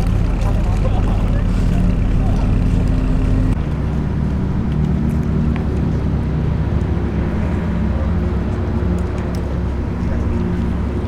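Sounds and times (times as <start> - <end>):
car engine running: 0.0 - 3.6.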